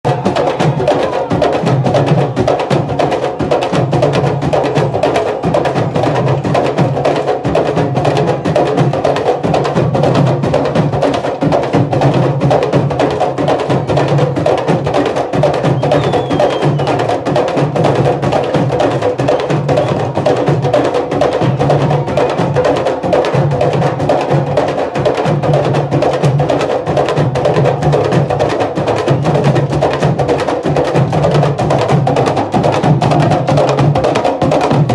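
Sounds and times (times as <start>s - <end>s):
hand drum ensemble playing: 0.1s - 34.9s.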